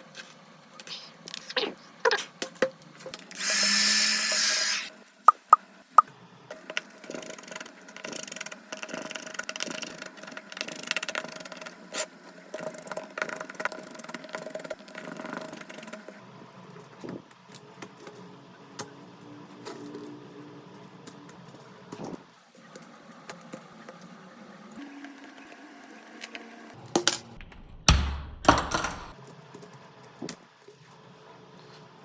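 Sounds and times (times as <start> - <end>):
hand tools scraping a smartphone: 3.4 - 4.9.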